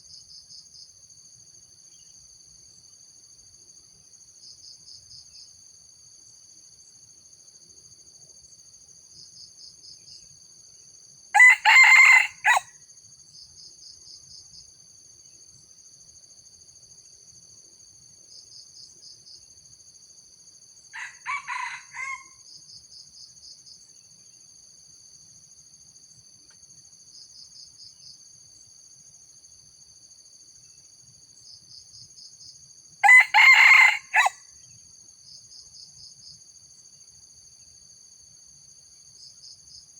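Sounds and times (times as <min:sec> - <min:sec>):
insects chirring: 0:00.0 - 0:39.9
rooster crowing: 0:11.3 - 0:12.7, 0:20.9 - 0:22.4, 0:33.0 - 0:34.4.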